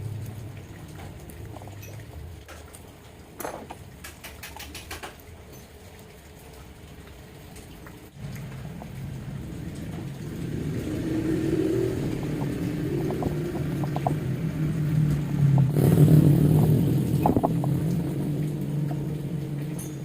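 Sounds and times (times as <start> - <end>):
scooter engine revving: 10.6 - 18.4.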